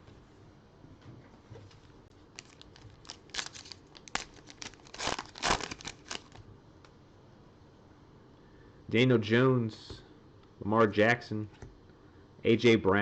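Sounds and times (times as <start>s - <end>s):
wrapper crinkling and tearing: 2.3s - 6.4s.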